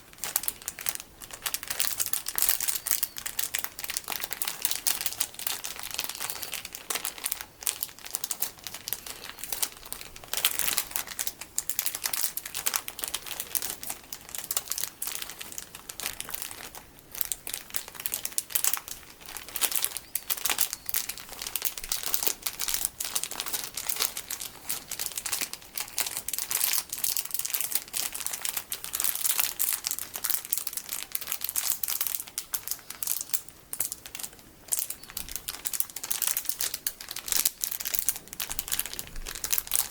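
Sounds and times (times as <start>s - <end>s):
plastic packaging crinkling: 0.0s - 39.9s.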